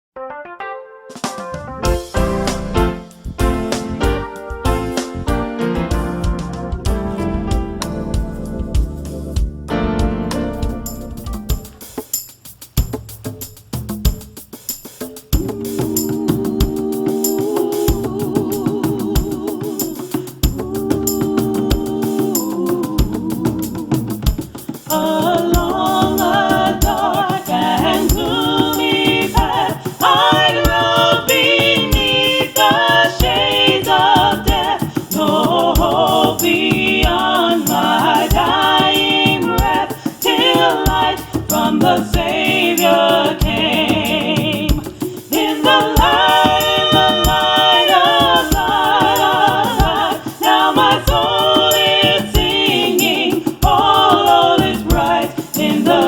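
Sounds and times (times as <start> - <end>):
instrumental accompaniment: 0.2 - 13.3
steady percussion beat: 1.2 - 56.0
gospel choir singing: 1.8 - 11.9, 15.3 - 56.0.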